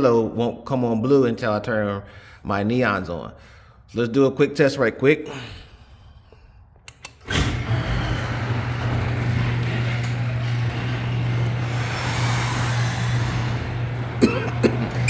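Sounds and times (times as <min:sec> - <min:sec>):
garage door opener humming: 0:07.2 - 0:15.0.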